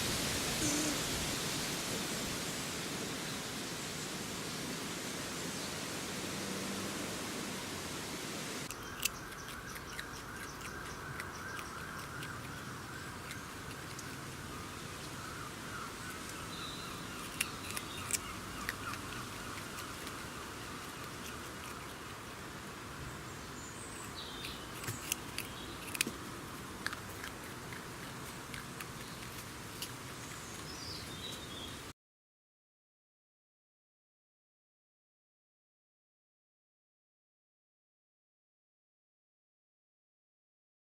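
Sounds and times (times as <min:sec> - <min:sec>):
steady hiss: 0:00.0 - 0:08.7.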